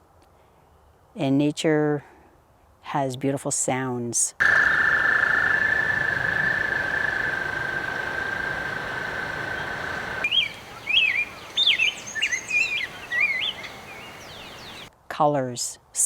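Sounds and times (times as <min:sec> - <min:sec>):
birds singing whistled phrases: 0:04.4 - 0:14.9.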